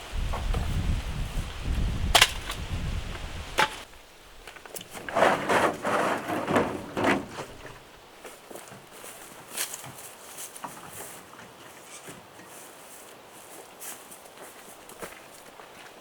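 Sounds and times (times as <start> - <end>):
wind rumble on microphone: 0.0 - 3.8
crunching rustling noises: 0.0 - 16.0.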